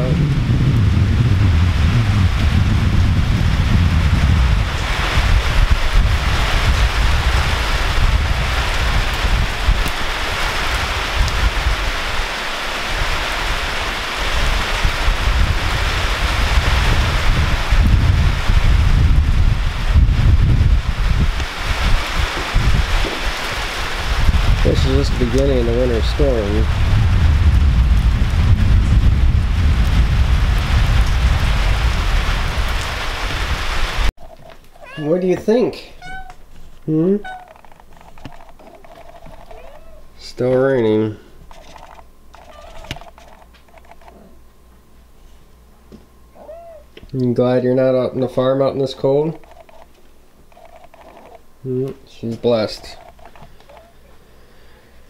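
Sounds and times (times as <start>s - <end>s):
heavy rain pouring: 0.0s - 34.1s
wind rumbling on microphone: 0.0s - 35.0s.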